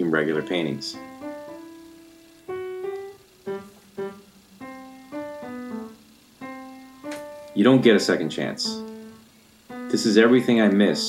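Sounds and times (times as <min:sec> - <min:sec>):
slow piano notes: 0:00.0 - 0:11.0.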